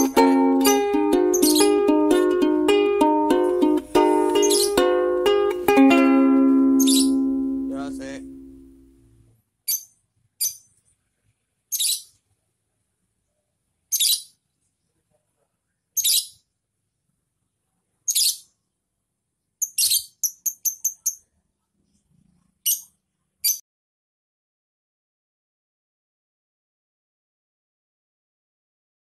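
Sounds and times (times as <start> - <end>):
lovebird chirping: 0.0 - 9.0, 9.6 - 10.7, 11.7 - 12.2, 13.9 - 14.4, 16.0 - 16.5, 18.0 - 18.6, 19.6 - 21.4, 22.6 - 23.6.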